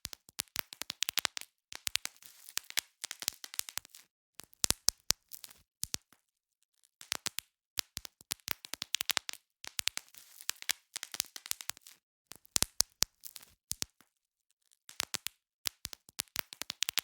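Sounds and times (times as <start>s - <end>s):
bubble wrap popping: 0.0s - 6.1s, 7.0s - 14.1s, 14.9s - 17.0s.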